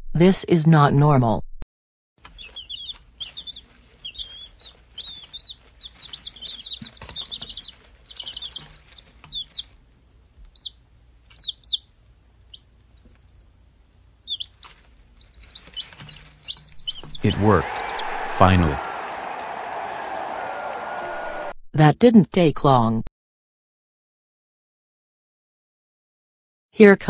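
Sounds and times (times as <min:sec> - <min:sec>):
birds chirping: 0:02.2 - 0:13.6, 0:14.2 - 0:21.5.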